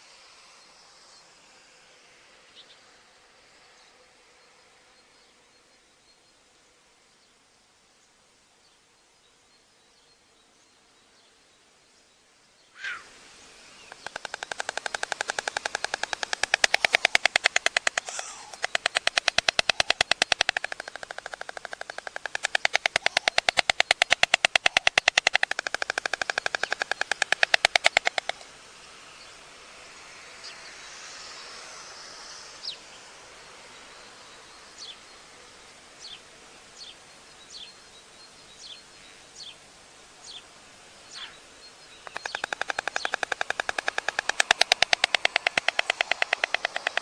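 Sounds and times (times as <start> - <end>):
high falling bird chirps: 12.7 - 28.5, 41.0 - 47.0
storks clattering bills: 13.9 - 28.4, 42.1 - 47.0.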